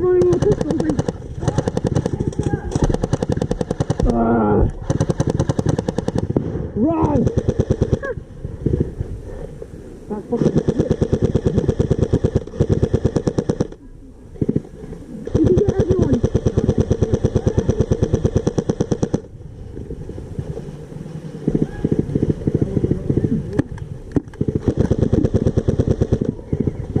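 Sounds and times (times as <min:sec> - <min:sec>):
airsoft rifle firing bursts: 0:00.0 - 0:04.2, 0:04.8 - 0:08.1, 0:10.3 - 0:13.8, 0:15.3 - 0:19.3, 0:24.3 - 0:26.7.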